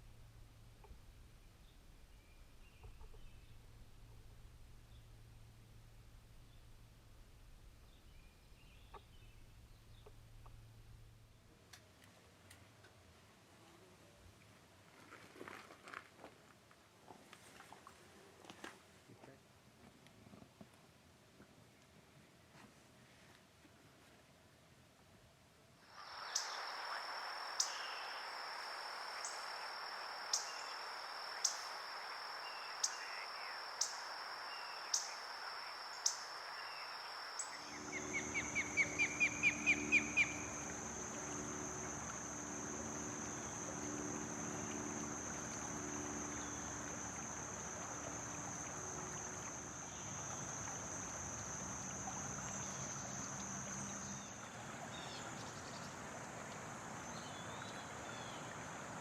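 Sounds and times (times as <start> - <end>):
faint low hum: 0.0 - 15.2, 24.6 - 59.0
high-pitched insect drone: 25.9 - 54.4.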